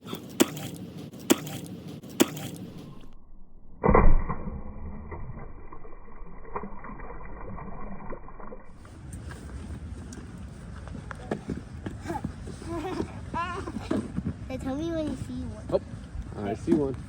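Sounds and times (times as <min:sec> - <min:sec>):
feet splashing through puddles: 0:00.2 - 0:02.9.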